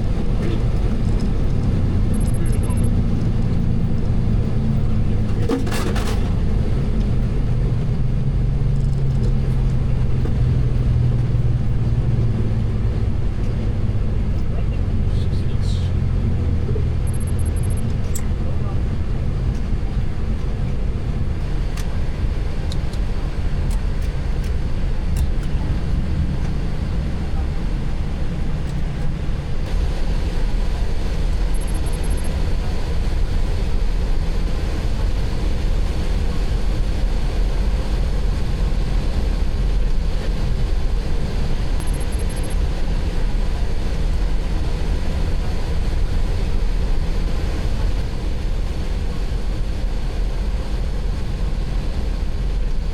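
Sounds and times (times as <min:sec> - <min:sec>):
engines and rolling wheels rumble: 0:00.0 - 0:52.9
faint clicks: 0:41.8 - 0:42.6.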